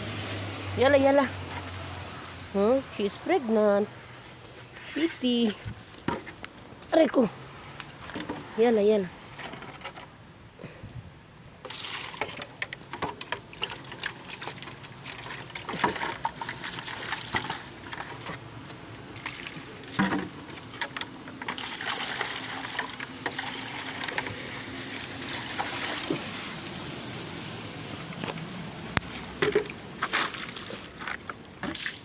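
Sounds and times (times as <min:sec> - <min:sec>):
water trickling and splashing: 0:00.0 - 0:06.1, 0:11.6 - 0:32.0.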